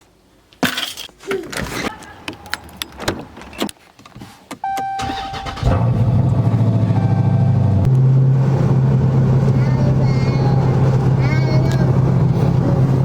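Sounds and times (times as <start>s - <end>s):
steady electronic chime: 6.9s - 7.8s.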